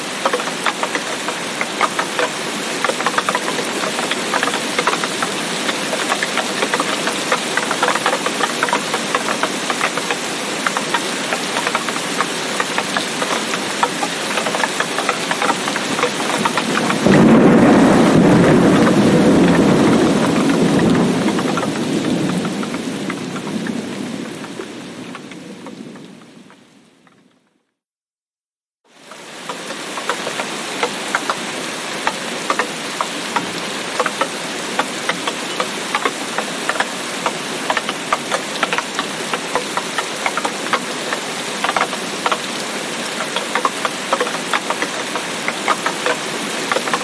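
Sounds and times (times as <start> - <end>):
heavy rain falling: 0.0 - 27.4, 28.9 - 47.0
thunder rumbling: 14.4 - 26.8.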